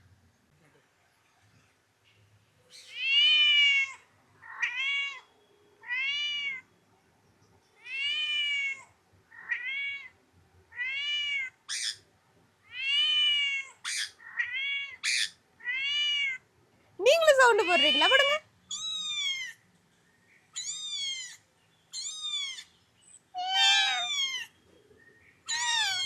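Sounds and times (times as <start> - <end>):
parrot meowing like a cat: 2.7 - 6.6, 7.8 - 10.1, 10.7 - 12.0, 12.7 - 16.4, 17.1 - 19.6, 20.6 - 22.7, 23.4 - 24.5, 25.5 - 26.0
parrot screeching: 11.7 - 12.0, 13.8 - 15.4, 17.4 - 19.5, 20.6 - 22.7, 23.4 - 24.5, 25.5 - 26.0.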